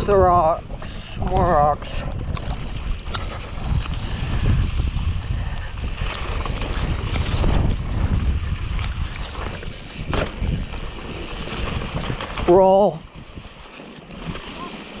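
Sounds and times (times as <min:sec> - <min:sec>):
mountain bike rattling over rocks: 0:00.0 - 0:15.0
wind buffeting microphone: 0:00.0 - 0:15.0
bike clicks and knocks: 0:05.5 - 0:12.7.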